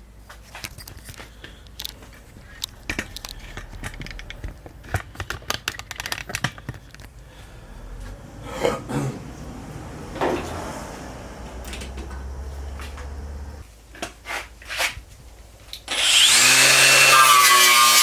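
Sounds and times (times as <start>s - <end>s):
tools clicking and clattering: 0.6s - 7.2s, 11.5s - 13.2s
steady low hum: 7.0s - 13.6s.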